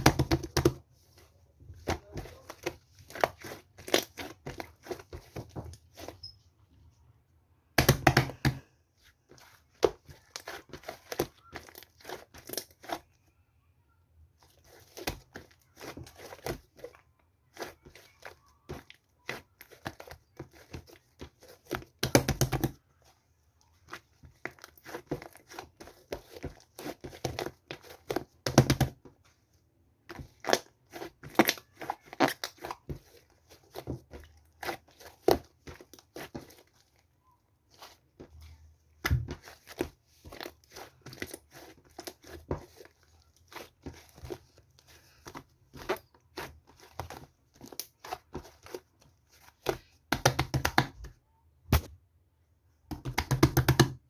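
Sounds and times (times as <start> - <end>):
crinkling and crackling: 14.4 - 51.2.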